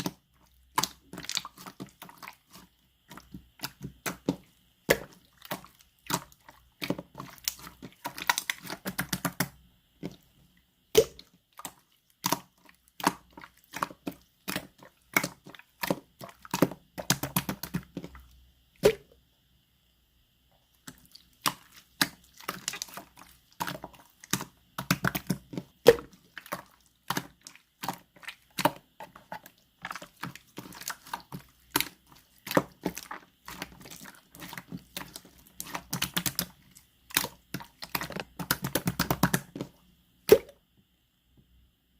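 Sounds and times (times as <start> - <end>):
slime squeezed with sticky pops: 10.9 - 18.1, 18.8 - 19.1, 20.9 - 40.6.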